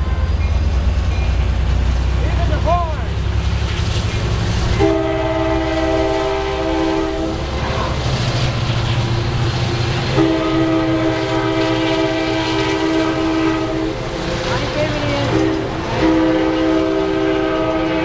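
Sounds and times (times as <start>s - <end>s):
low train rumble: 0.0s - 18.0s
train horn blasts: 4.7s - 7.9s, 10.0s - 18.0s.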